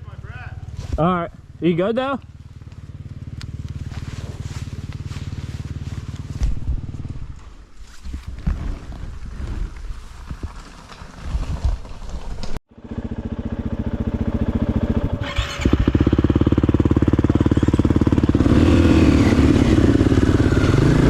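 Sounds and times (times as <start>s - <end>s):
dirt bike engine running: 0.0s - 7.7s, 12.7s - 21.0s
rustling: 3.5s - 12.6s.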